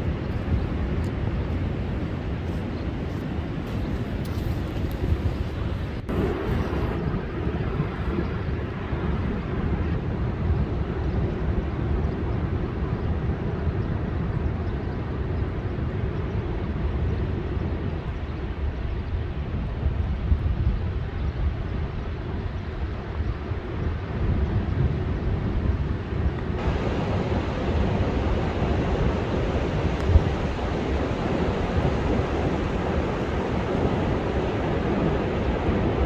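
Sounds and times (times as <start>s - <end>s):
rough surf breaking on beach: 0.0s - 9.4s, 26.5s - 36.0s
wind rumbling on microphone: 0.0s - 36.0s.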